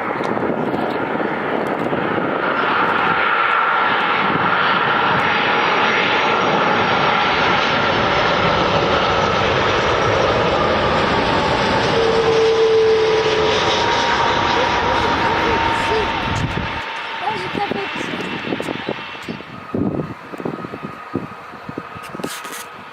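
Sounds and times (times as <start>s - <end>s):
airliner engines rushing with whine: 0.0s - 22.9s.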